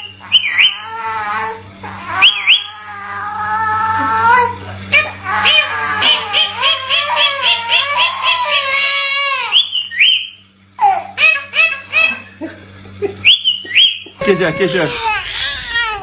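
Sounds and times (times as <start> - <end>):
high-pitched laugh-like calls: 0.0 - 10.2, 10.8 - 16.0
short rising whistles: 9.5 - 10.4.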